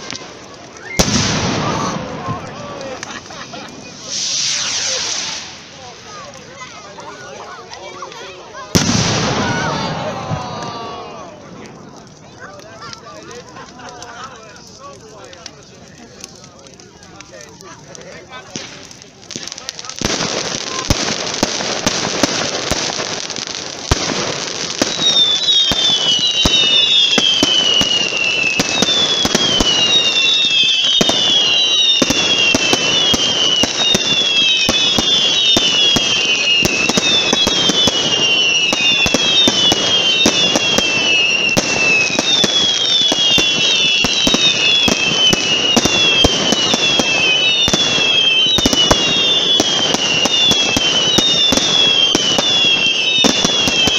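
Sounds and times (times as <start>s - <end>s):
falling firework whistles: 0.0s - 2.4s, 3.0s - 6.2s, 24.0s - 53.9s
fireworks cracks and pops: 0.0s - 53.9s.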